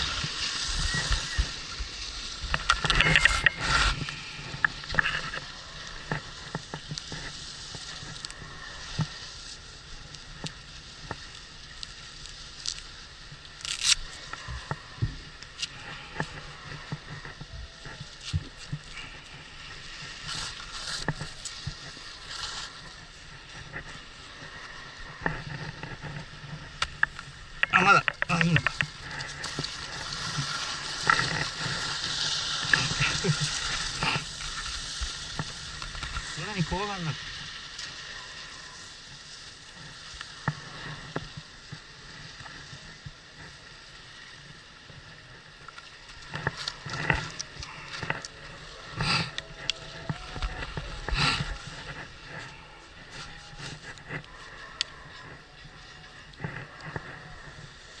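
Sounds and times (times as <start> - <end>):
ski scraping hisses: 0.0 - 58.0
skis sliding on snow: 0.0 - 58.0
ski gear clicks and knocks: 2.4 - 9.2, 10.4 - 36.9.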